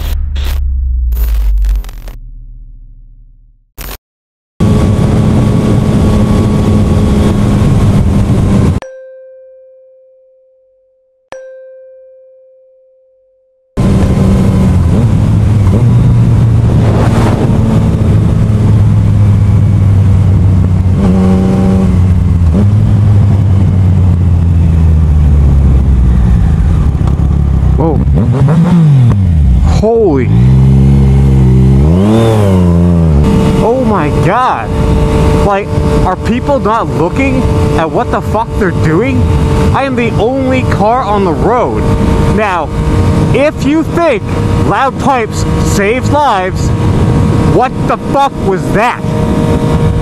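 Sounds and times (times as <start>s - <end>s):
wind noise on microphone: 4.6s - 8.8s, 13.8s - 29.7s, 31.0s - 48.0s, 49.0s - 50.0s
motorcycle running: 4.6s - 8.9s, 13.8s - 50.0s.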